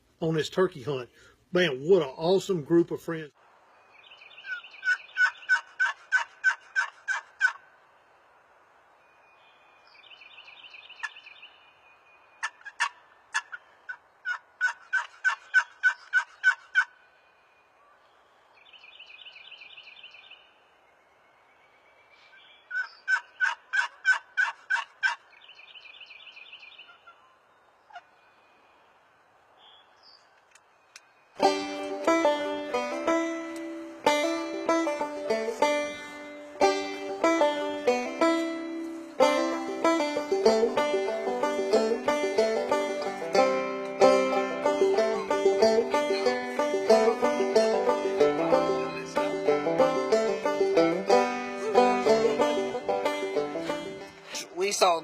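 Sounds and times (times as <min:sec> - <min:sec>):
turkey yelping: 0:04.4 - 0:07.6, 0:12.4 - 0:17.0, 0:22.7 - 0:25.3, 0:26.8 - 0:28.0.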